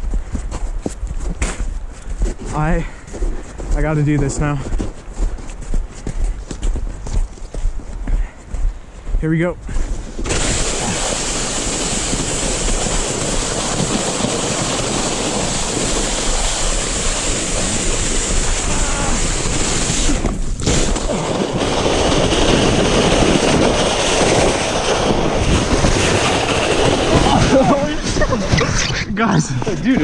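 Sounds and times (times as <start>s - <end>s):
wind rushing on microphone: 0.0s - 30.0s
sled scraping over snow: 9.8s - 30.0s.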